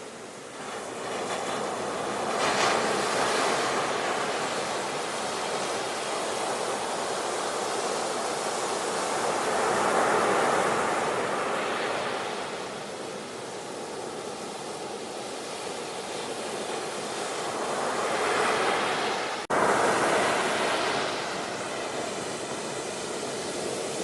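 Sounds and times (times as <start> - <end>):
ocean waves breaking: 0.0 - 24.0.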